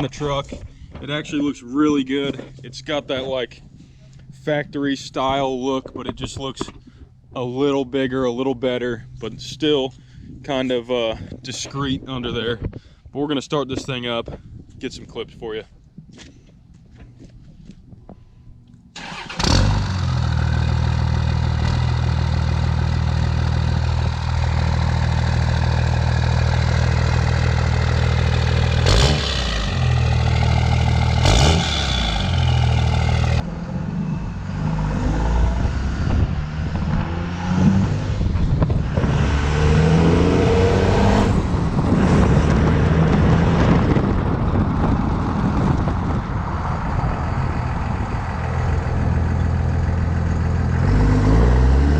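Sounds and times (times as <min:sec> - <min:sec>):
diesel engine starting and revving: 0:18.9 - 0:51.9.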